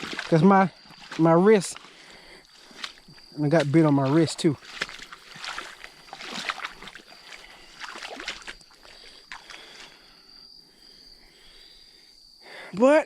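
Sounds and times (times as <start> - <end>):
small splashes and crackles: 0.0 - 10.1
creek water sloshing: 0.0 - 10.3
insect trilling: 0.0 - 13.0.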